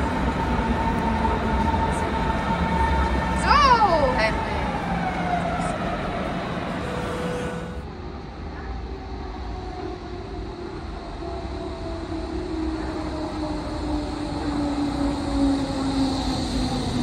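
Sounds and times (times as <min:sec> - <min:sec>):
electric train rumble: 0:00.0 - 0:17.0
train motor whine: 0:06.6 - 0:07.8.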